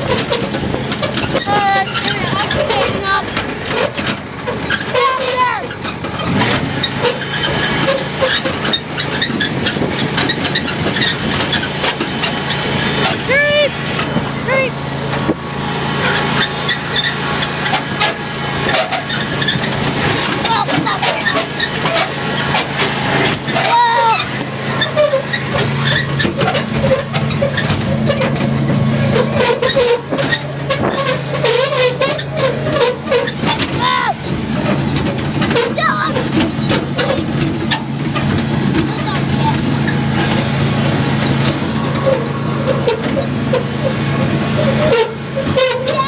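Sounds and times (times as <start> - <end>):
lawn mower engine running: 0.0 - 46.0
short rattles and knocks: 0.0 - 46.0
short wavering squeaks: 16.0 - 46.0.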